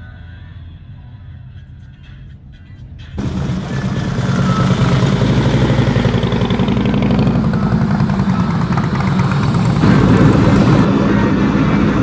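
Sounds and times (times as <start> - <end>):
vehicle engine running: 3.2 - 12.0.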